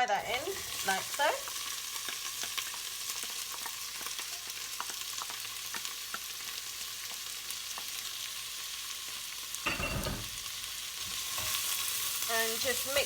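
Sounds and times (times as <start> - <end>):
onions sizzling in a pan: 0.0 - 13.0.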